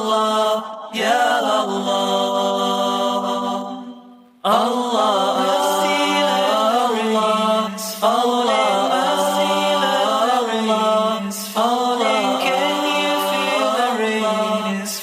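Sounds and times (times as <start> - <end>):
voices singing a chant: 0.0 - 15.0.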